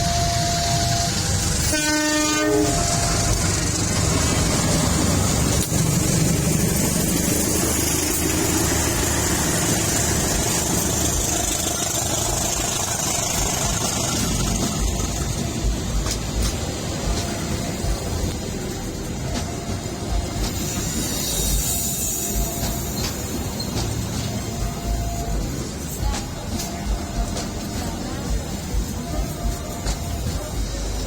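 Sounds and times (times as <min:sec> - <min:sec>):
train horn blowing: 0:00.0 - 0:04.8
train rumbling: 0:00.0 - 0:31.0.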